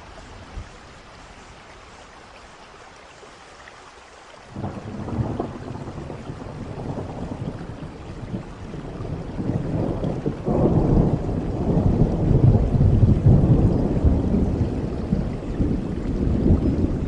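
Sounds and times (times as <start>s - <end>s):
steady rain: 0.0s - 17.0s
rolling thunder rumble: 4.6s - 17.0s.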